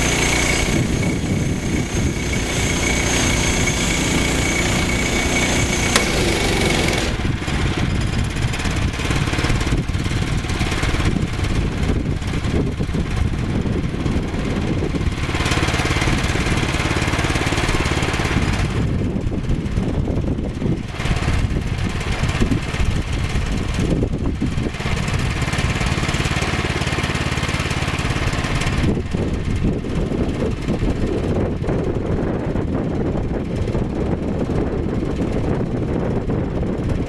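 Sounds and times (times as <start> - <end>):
band blade rasping through log: 0.0 - 7.4
sawmill engine under load: 0.0 - 12.4, 13.6 - 19.0, 24.7 - 29.6.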